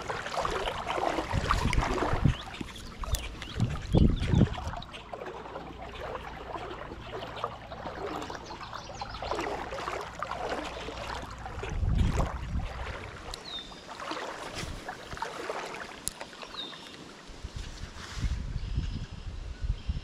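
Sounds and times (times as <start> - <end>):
wind gusts on microphone: 0.0 - 5.0, 11.4 - 13.4, 17.3 - 20.0
creek water splashing: 0.0 - 18.3.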